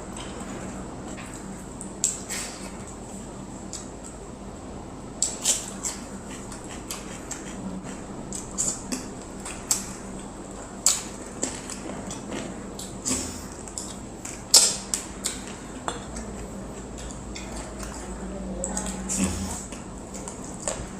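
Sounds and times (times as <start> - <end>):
chewing: 5.2 - 20.9.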